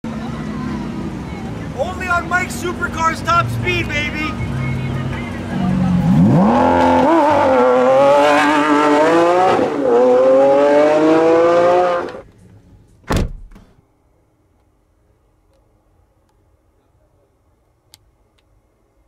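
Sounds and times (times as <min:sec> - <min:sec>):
car engine revving: 0:00.1 - 0:12.2.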